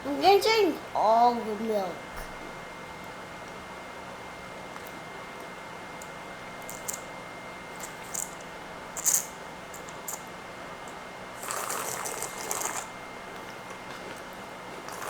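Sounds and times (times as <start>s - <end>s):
eating cereal: 11.4s - 12.9s, 14.2s - 15.0s.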